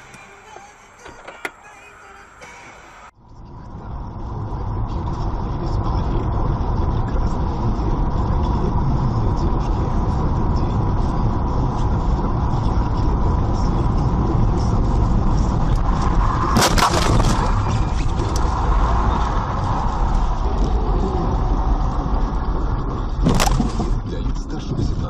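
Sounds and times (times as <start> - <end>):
car engine and road rumble: 0.0 - 25.0
sudden loud burst of noise: 15.7 - 22.4.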